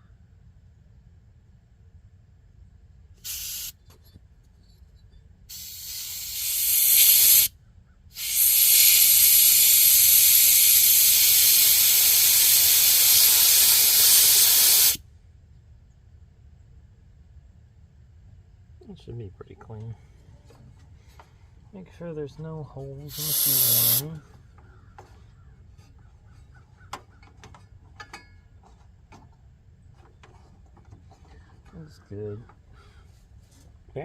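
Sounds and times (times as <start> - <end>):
compressed air blow gun hissing: 3.2 - 3.8, 5.5 - 7.5, 8.1 - 15.0, 23.1 - 24.2.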